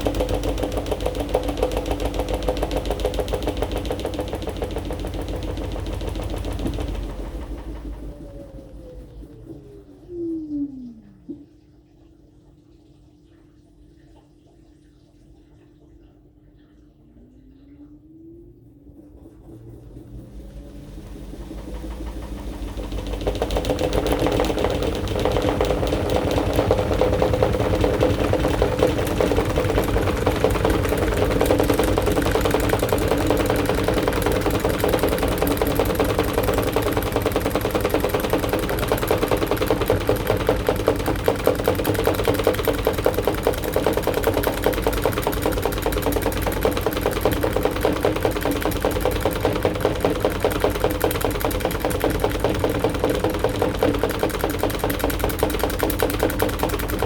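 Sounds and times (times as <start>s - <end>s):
fast continuous rattle: 0.0s - 9.7s, 21.0s - 57.0s
washing machine motor hum: 0.0s - 57.0s.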